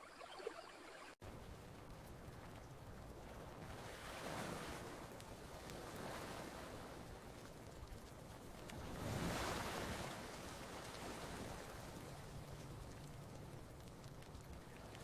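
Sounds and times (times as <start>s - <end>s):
campfire crackling pops: 1.2s - 3.9s, 6.8s - 15.0s
ocean waves washing onto beach: 1.2s - 15.0s.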